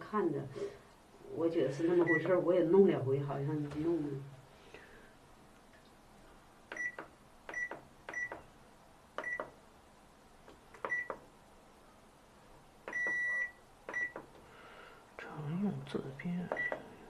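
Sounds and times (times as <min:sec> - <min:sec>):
control panel beeps: 0:02.0 - 0:02.4, 0:06.7 - 0:08.4, 0:09.2 - 0:09.5, 0:10.8 - 0:11.2, 0:12.9 - 0:14.2, 0:16.5 - 0:16.8.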